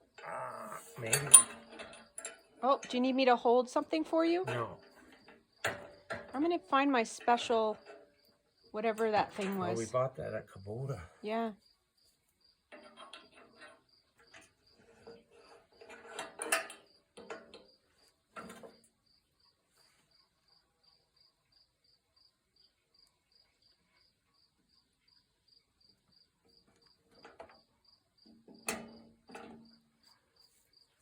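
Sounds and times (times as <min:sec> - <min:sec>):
crickets chirping: 0:00.0 - 0:15.9, 0:16.5 - 0:31.0
metal clanks and rattles: 0:00.9 - 0:09.8, 0:12.7 - 0:18.8, 0:26.7 - 0:30.1.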